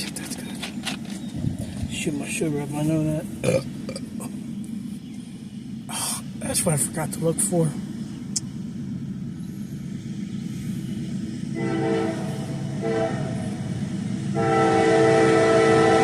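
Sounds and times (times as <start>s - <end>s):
train rumbling: 0.0s - 16.0s
locomotive air horn blasts: 11.6s - 13.6s, 14.3s - 16.0s.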